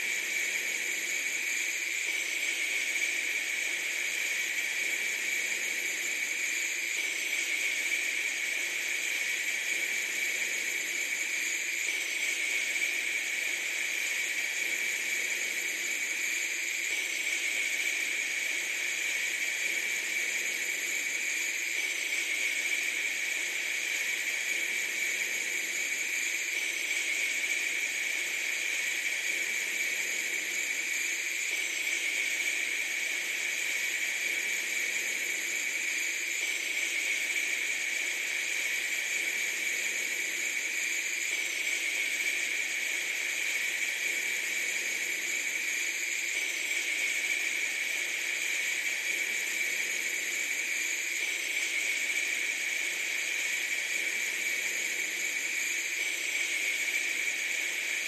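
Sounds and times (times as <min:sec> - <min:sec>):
steady high hiss: 0:00.0 - 0:58.0.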